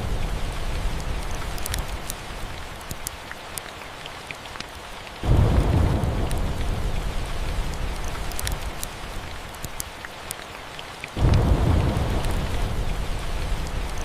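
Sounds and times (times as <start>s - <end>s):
fireplace crackles: 0.0s - 14.0s
steady rain: 0.0s - 14.0s
low thunder rumble: 5.2s - 8.3s, 11.2s - 14.0s.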